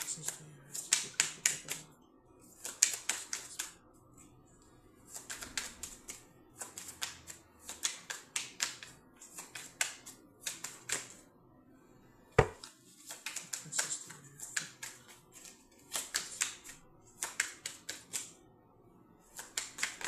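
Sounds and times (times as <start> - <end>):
playing cards being shuffled: 2.5 - 3.8, 12.4 - 18.4
card deck knocking on table: 12.4 - 12.6.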